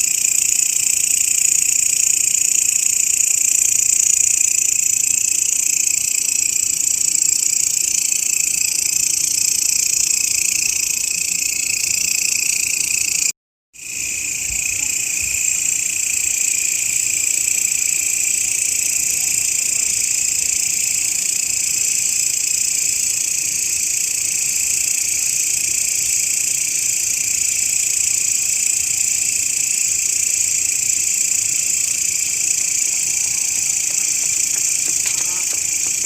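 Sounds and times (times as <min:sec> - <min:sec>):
grasshopper buzzing: 0:30.3 - 0:36.0.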